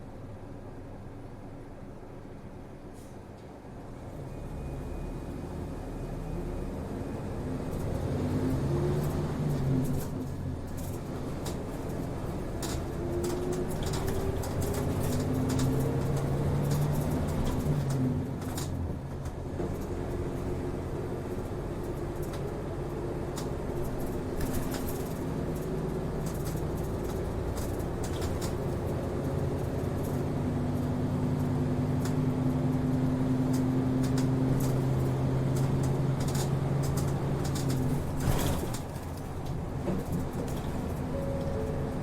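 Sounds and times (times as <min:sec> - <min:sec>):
bus diesel engine droning: 0:00.0 - 0:42.0.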